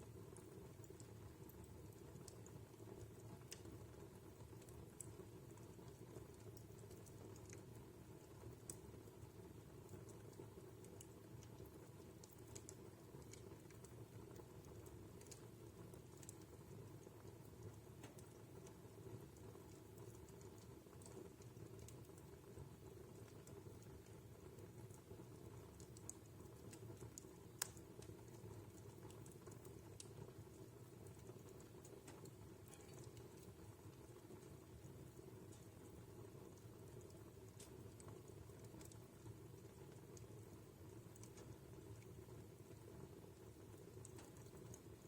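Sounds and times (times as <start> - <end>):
low fire rumble: 0.0 - 45.0
wood fire crackling: 0.0 - 45.0.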